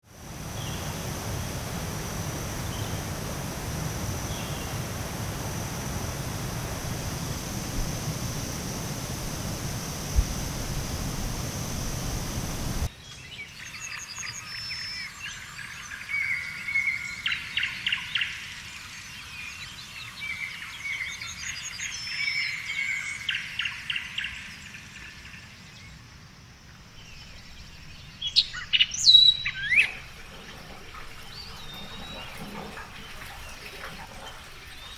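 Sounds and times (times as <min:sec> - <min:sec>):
high insect drone: 0:00.1 - 0:12.9, 0:26.0 - 0:32.4
steady rushing noise: 0:00.1 - 0:12.9
forest birds singing: 0:00.4 - 0:26.1, 0:26.7 - 0:34.9
sharp bird chirps: 0:27.0 - 0:30.0
bird trills: 0:27.0 - 0:30.2.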